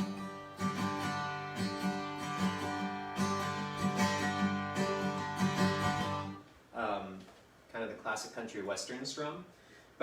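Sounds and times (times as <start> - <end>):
acoustic guitar strumming: 0.0 - 6.4.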